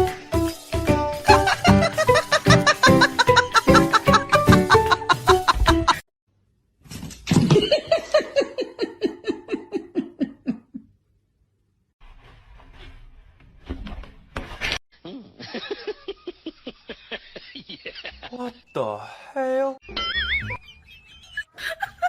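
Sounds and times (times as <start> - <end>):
person laughing hard: 1.3 - 6.0, 7.6 - 10.9, 15.1 - 18.4, 19.9 - 22.0.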